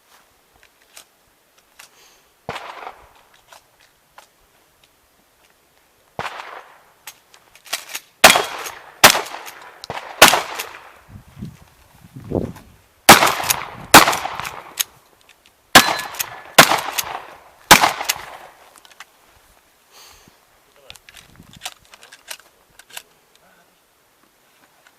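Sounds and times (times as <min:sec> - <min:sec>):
shotgun shots echoing: 0:02.5 - 0:03.0, 0:06.2 - 0:06.8, 0:08.2 - 0:11.0, 0:13.1 - 0:14.8, 0:15.7 - 0:18.6.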